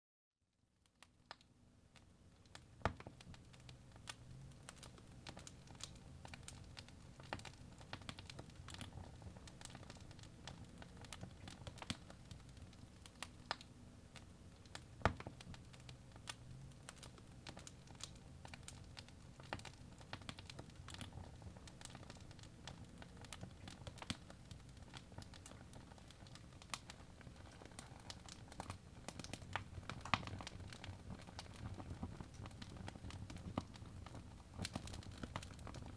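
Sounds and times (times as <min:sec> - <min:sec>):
fire crackling and popping: 0:00.8 - 0:35.9.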